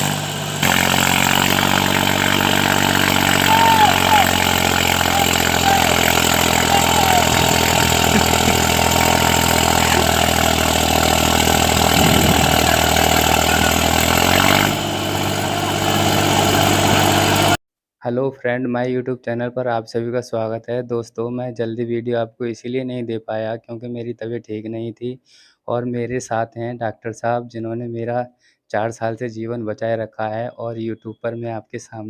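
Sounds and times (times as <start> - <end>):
tractor engine running: 0.0 - 17.6.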